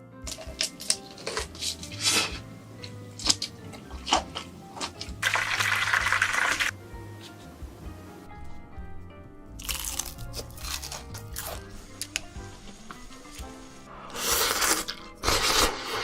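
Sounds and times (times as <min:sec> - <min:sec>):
background music: 0:00.0 - 0:16.0
cracks and clicks of eating food: 0:00.2 - 0:06.7, 0:09.6 - 0:13.5.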